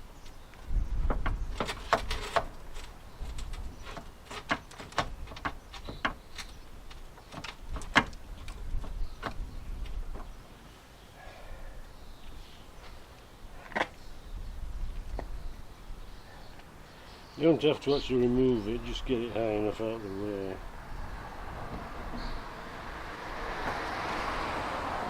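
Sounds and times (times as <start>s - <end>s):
low thumps: 20.6s - 23.9s.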